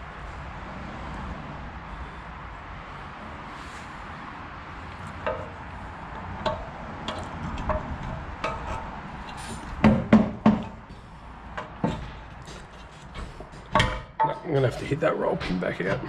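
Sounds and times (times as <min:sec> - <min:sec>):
loud knocks: 0:09.8 - 0:10.9.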